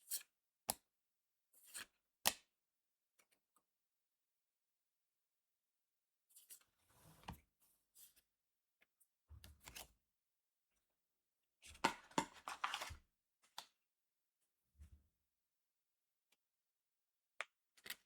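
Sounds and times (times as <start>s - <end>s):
cards rustling and tearing: 12.4s - 12.9s.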